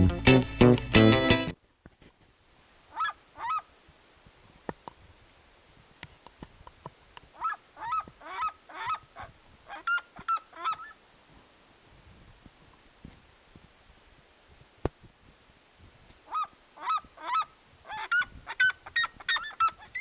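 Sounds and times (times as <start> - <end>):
honking animal calls: 7.4 - 10.9.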